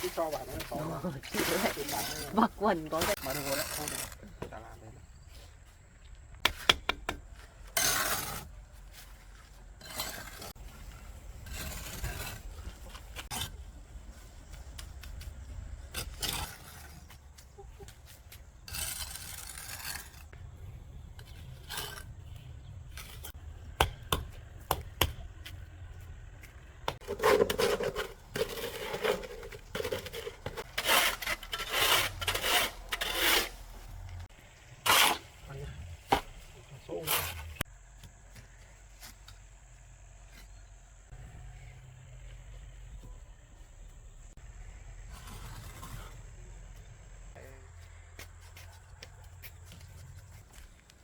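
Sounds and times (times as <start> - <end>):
scraping and rubbing strokes: 0.0 - 4.3, 7.4 - 20.4, 21.1 - 23.4, 27.0 - 37.7.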